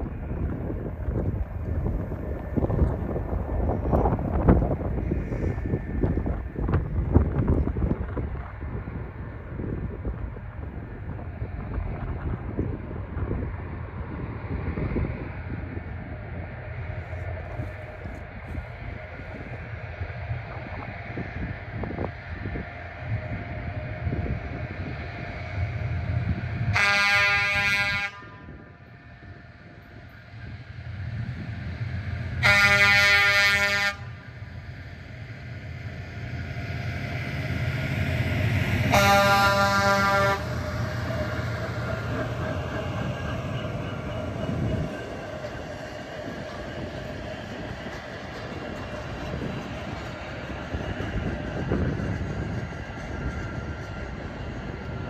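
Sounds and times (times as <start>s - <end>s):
train rumbling: 0.0s - 55.0s
train horn blasts: 26.7s - 28.5s, 32.4s - 34.2s, 38.9s - 40.6s.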